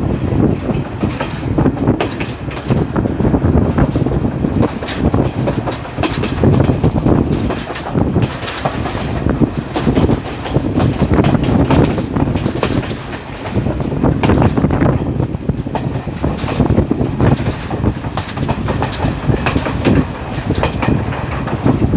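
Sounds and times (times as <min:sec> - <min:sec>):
train rumbling: 0:00.0 - 0:21.9
wheels clacking over rail joints: 0:00.0 - 0:21.9.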